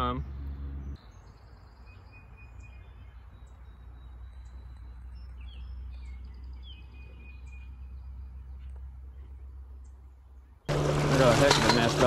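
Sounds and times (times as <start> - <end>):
small birds chirping and whistling: 0.8 - 10.0.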